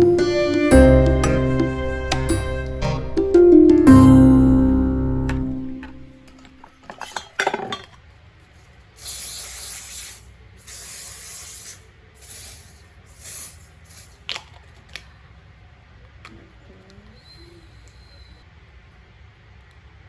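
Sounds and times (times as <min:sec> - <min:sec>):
background music: 0:00.0 - 0:06.4
hissing spray bursts: 0:09.0 - 0:14.2.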